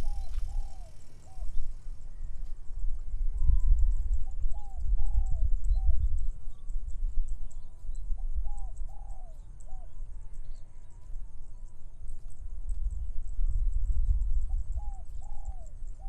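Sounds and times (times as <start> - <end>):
dove cooing: 0.0 - 1.6, 14.8 - 16.0
wind on microphone: 0.0 - 9.2, 12.4 - 16.0
faint high chirping: 0.0 - 16.0.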